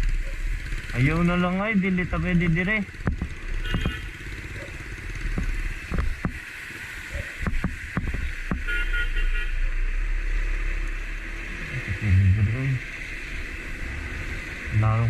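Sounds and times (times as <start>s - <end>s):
traffic through flooded street: 0.0s - 15.0s
sharp knocks: 3.0s - 4.1s, 5.3s - 6.4s, 7.4s - 8.7s.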